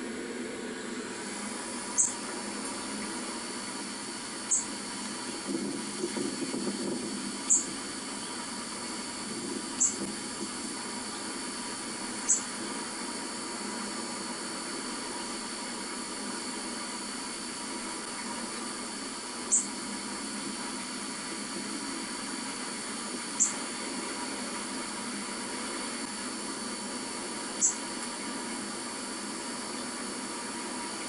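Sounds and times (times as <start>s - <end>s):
steady hiss: 0.0s - 31.0s
bird chirping through speaker: 2.0s - 2.2s.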